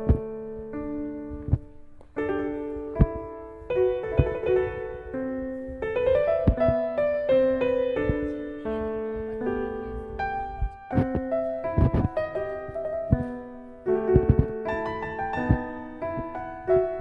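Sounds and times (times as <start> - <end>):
piano music: 0.0 - 17.0
soft low thumps: 0.0 - 17.0.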